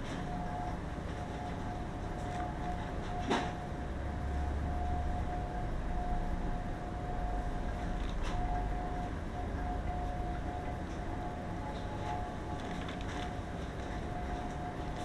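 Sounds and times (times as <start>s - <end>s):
low mechanical hum: 0.0s - 15.0s
thin steady whine: 0.0s - 15.0s.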